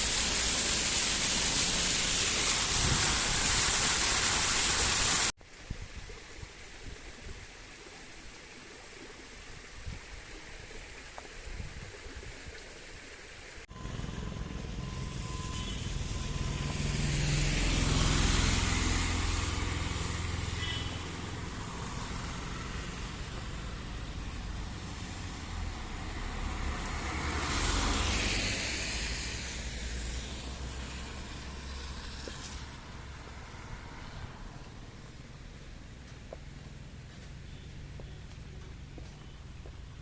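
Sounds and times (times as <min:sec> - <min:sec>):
tyre hiss on wet road: 0:00.0 - 0:05.4, 0:10.6 - 0:39.7.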